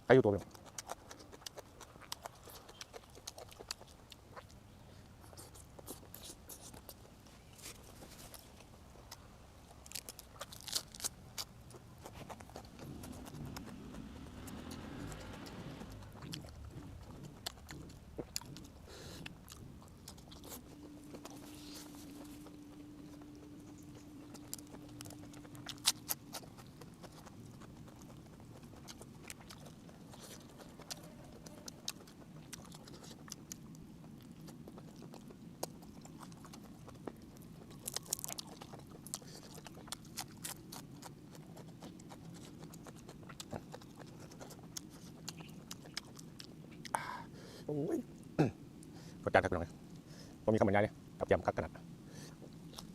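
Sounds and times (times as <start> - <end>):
close-up chewing: 0.0 - 52.9
low steady hum: 0.0 - 52.9.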